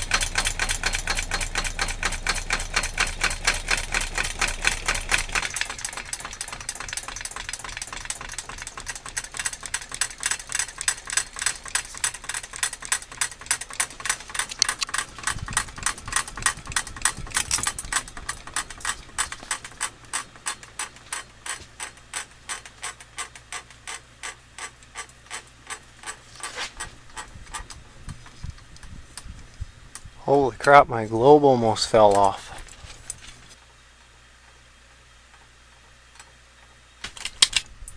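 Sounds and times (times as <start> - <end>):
ceiling fan knocking: 0.0 - 20.9
glass globe rattling: 0.0 - 21.0.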